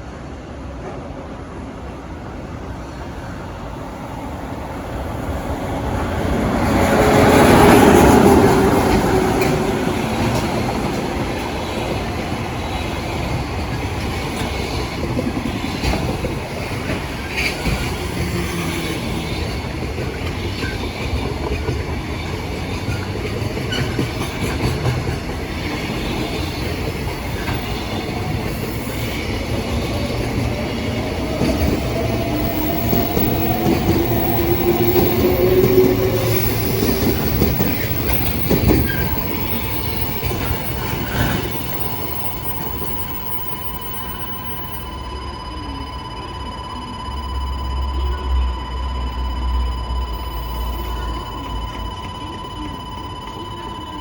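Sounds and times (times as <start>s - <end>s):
freight train locomotive passing: 0.0s - 54.0s
wagons clattering over rail joints: 29.6s - 43.1s.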